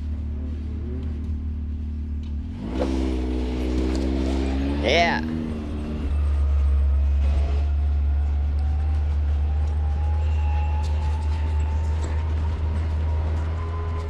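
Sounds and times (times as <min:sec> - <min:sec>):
off-road vehicle engine droning: 0:00.0 - 0:14.0
whine rising in pitch: 0:03.7 - 0:14.0.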